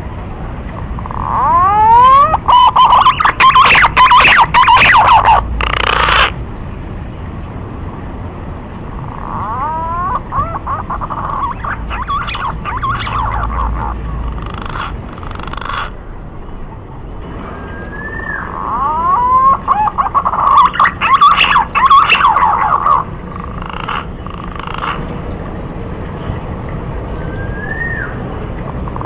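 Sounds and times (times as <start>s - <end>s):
pigeons whistling calls: 1.1s - 6.3s, 9.2s - 15.9s, 17.4s - 23.0s, 27.2s - 28.2s.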